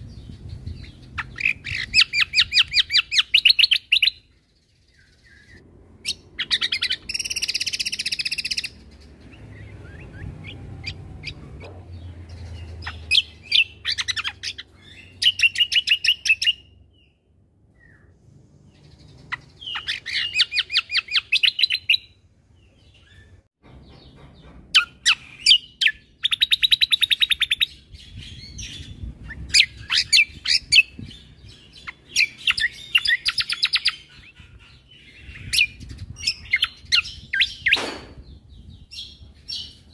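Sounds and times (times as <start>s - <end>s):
songbird chattering: 0.0s - 17.1s, 18.8s - 23.4s.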